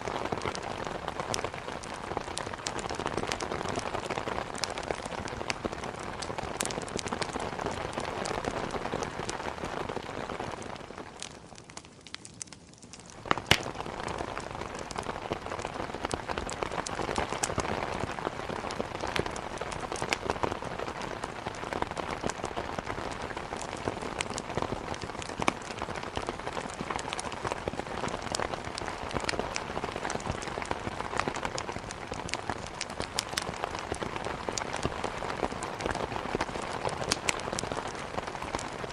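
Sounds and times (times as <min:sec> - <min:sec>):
heavy rain: 0:00.0 - 0:11.6, 0:13.1 - 0:38.9
wood fire crackling: 0:00.0 - 0:38.9
loud pop: 0:13.3 - 0:13.7.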